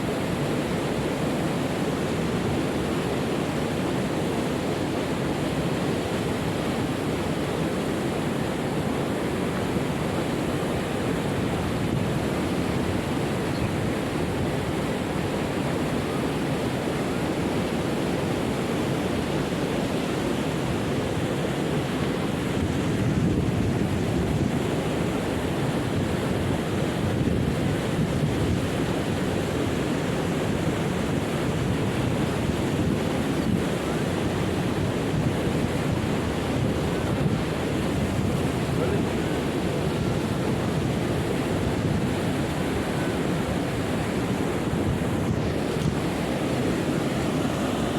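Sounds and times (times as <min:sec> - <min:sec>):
waterfall rushing: 0:33.0 - 0:47.9.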